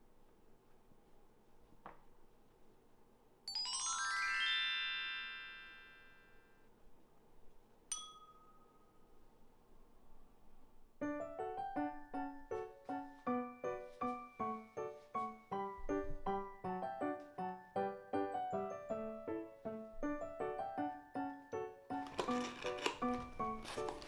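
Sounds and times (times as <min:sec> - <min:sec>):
light melodic music: 0:03.5 - 0:05.8, 0:11.0 - 0:24.0
rising chime tones: 0:03.5 - 0:06.3.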